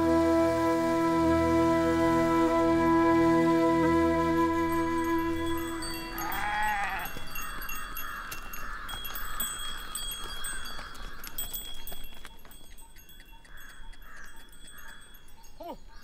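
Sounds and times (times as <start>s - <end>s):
background music: 0.0s - 6.3s
cattle bells clinking: 5.0s - 16.0s
cow bleating call: 5.5s - 7.5s.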